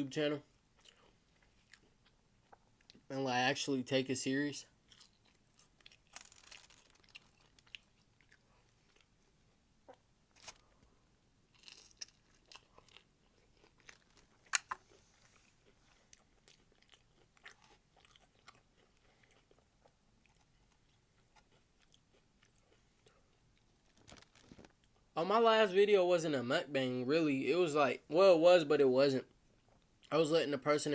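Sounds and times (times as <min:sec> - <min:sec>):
person chewing crunchy food: 0:00.6 - 0:03.1, 0:04.7 - 0:10.8, 0:11.5 - 0:25.1.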